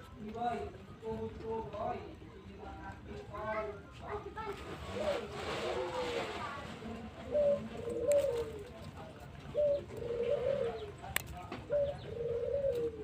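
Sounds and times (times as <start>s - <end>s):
pigeons cooing: 4.7s - 13.0s.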